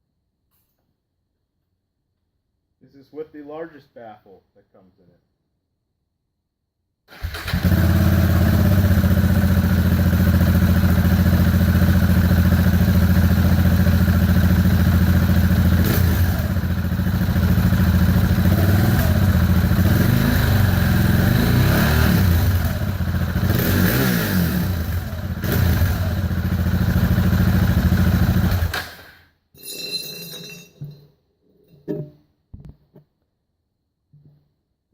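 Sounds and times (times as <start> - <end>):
motorcycle engine idling and revving: 7.1 - 29.1.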